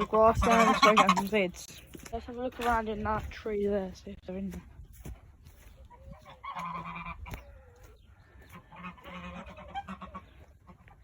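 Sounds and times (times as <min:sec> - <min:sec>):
domestic fowl calling: 0:00.0 - 0:01.5, 0:05.7 - 0:11.0.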